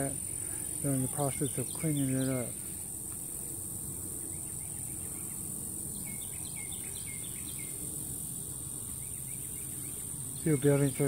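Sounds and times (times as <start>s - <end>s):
bird singing down-slurred notes: 0.0s - 3.5s, 4.2s - 11.0s
high-pitched insect chorus: 0.0s - 11.0s.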